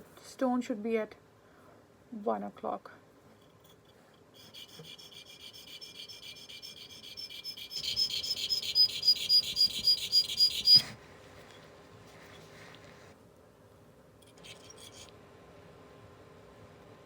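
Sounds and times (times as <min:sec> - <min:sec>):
blade scraping on sharpening stone: 0:03.6 - 0:10.9, 0:14.3 - 0:15.1.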